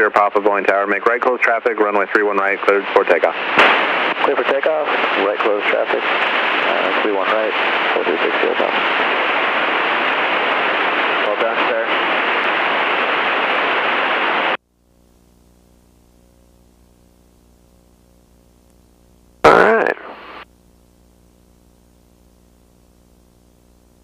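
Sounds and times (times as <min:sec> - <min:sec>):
aircraft cabin and engine noise: 0:00.0 - 0:12.9
faint electrical hum: 0:14.6 - 0:24.0.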